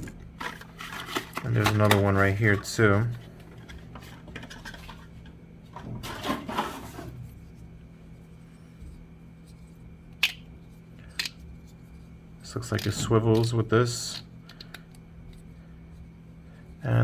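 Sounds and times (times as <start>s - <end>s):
plastic parts rubbing and scraping: 0.0s - 7.4s
low steady hum: 0.0s - 17.0s.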